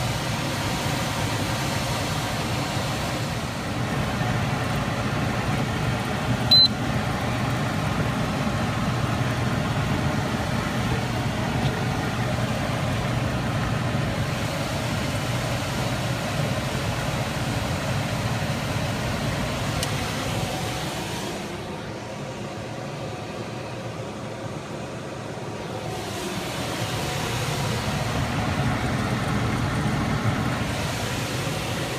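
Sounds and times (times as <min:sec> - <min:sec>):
short high-pitched beep: 0:06.5 - 0:06.8
machinery humming and rushing: 0:07.8 - 0:31.9.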